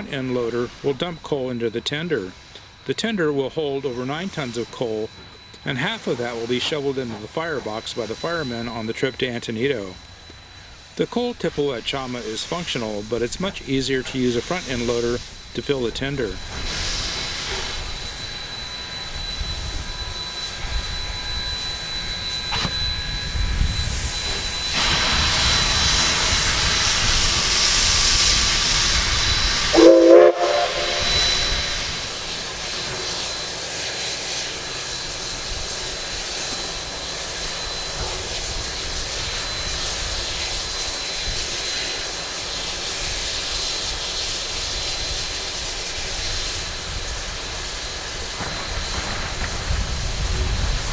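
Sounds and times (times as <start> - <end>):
steam locomotive hissing: 0.0 - 50.9
steam whistle blast: 29.6 - 32.2.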